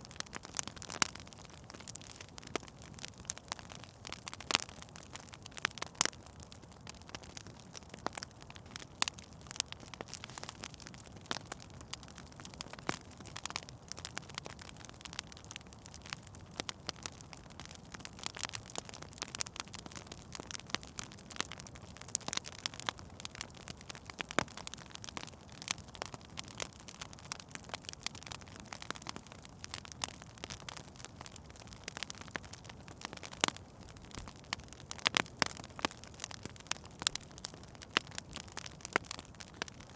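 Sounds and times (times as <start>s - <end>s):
fire popping: 0.0s - 39.9s
wood fire crackling: 0.0s - 39.9s
hiss of burning: 10.1s - 10.8s.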